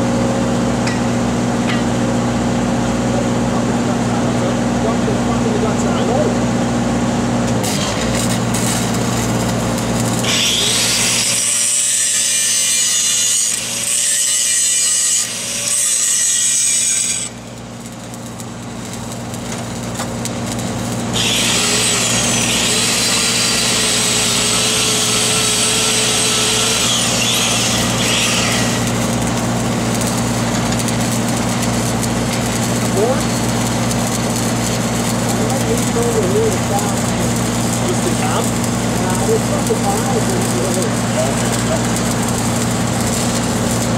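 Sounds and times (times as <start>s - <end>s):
welding machine engine running: 0.0s - 43.9s
harsh hissing of welding: 7.4s - 43.9s.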